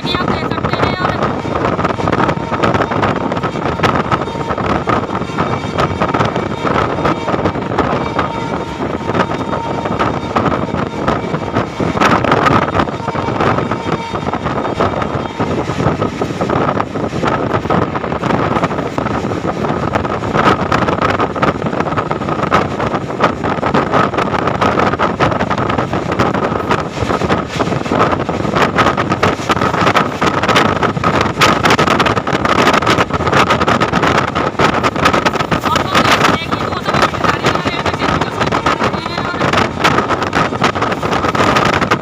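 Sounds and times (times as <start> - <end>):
train wheels rumbling on rails: 0.0 - 42.0.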